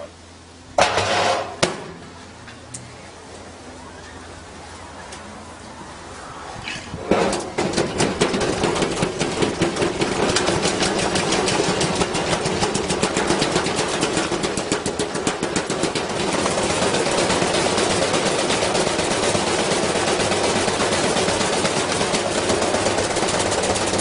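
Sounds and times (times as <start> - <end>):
washing machine drum spinning: 7.0 - 24.0.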